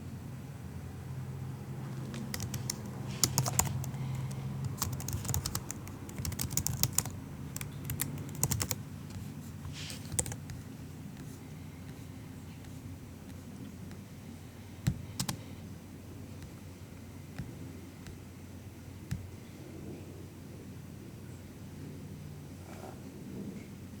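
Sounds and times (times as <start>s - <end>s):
soft typing on keyboard: 2.0s - 12.0s, 14.8s - 15.5s.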